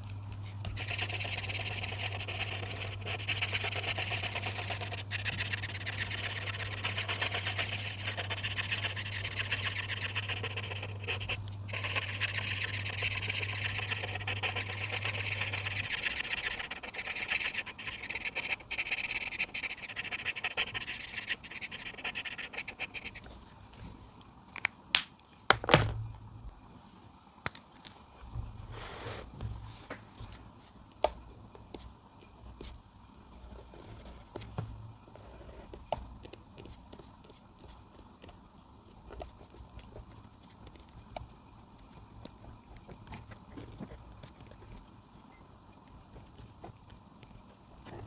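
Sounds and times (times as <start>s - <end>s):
low steady hum: 0.0s - 48.0s
coloring tool scratching on paper: 0.6s - 23.3s.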